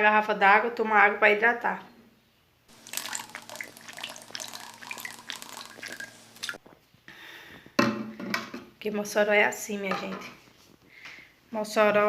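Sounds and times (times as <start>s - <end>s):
water running and splashing: 2.7s - 6.6s
faint steady hum: 2.7s - 7.4s.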